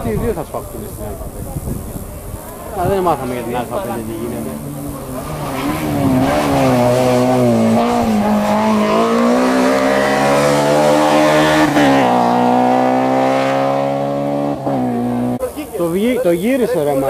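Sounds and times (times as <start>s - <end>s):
rally car engine revving: 3.2s - 15.5s.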